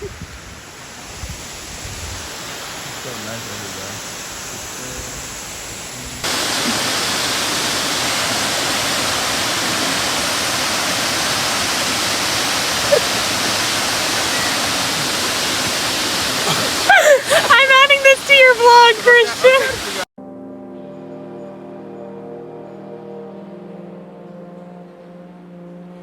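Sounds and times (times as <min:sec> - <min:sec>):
waterfall roaring: 0:00.6 - 0:20.1.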